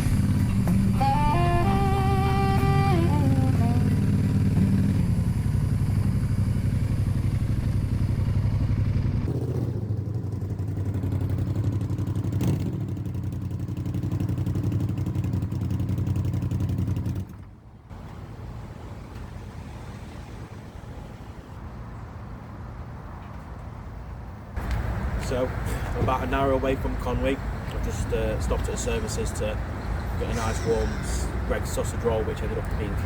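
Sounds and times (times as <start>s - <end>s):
motorcycle engine running: 0.0s - 17.4s
blues song: 0.6s - 4.0s.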